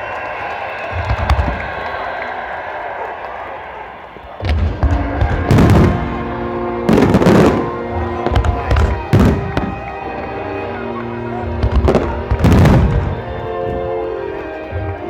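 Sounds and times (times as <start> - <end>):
firework booms: 4.4 - 10.6, 11.2 - 15.0
firework crackles: 4.4 - 15.0
music with held notes: 4.8 - 15.0.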